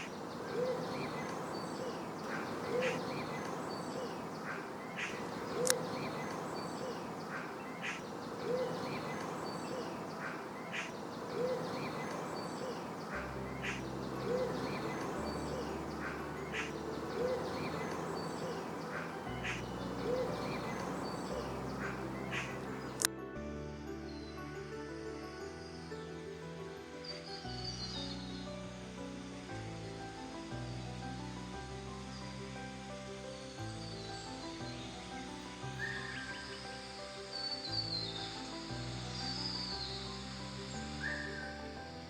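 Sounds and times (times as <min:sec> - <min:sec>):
low hoot-like bird call: 0:00.0 - 0:06.0, 0:06.8 - 0:09.2, 0:09.8 - 0:12.1, 0:13.6 - 0:23.0
higher bird chirps: 0:00.0 - 0:23.1
soft background music: 0:00.0 - 0:42.0
steady outdoor hiss: 0:00.0 - 0:42.0.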